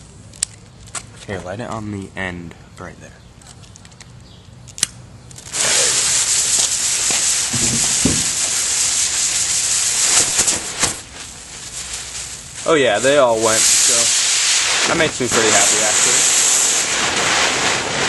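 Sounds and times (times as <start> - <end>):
fuses hissing and sputtering: 5.4 - 18.0
dull thumps: 7.5 - 8.4.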